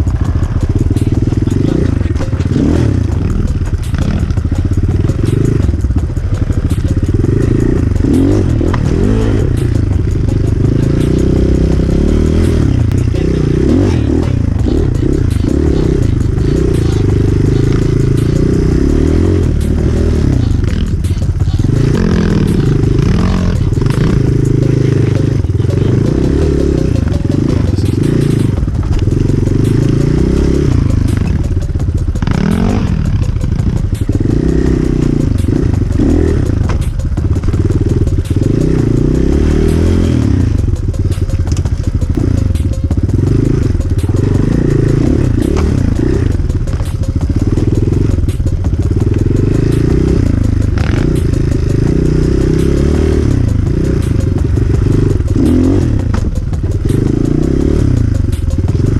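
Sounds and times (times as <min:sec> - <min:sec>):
bike clattering and knocking: 0:00.0 - 0:39.2, 0:53.4 - 0:58.9
motorcycle engine revving: 0:00.0 - 0:58.9.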